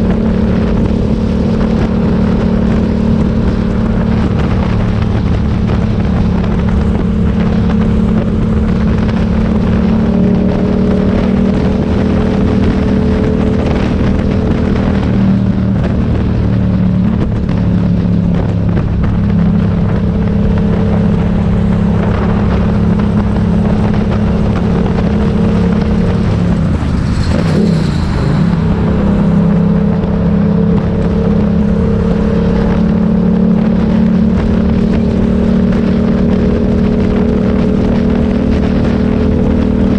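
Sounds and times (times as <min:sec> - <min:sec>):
motorcycle engine running: 0:00.0 - 0:39.9
high-pitched squeal: 0:21.8 - 0:33.3.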